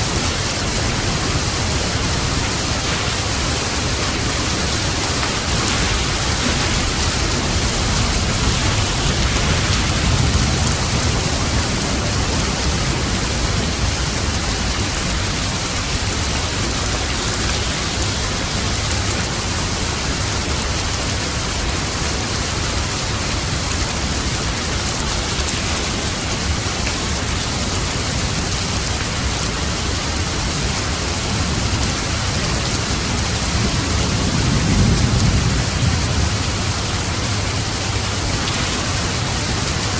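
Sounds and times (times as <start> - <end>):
low rumbles of thunder: 0.0 - 22.3, 30.6 - 39.9
steady rain falling: 0.0 - 39.9.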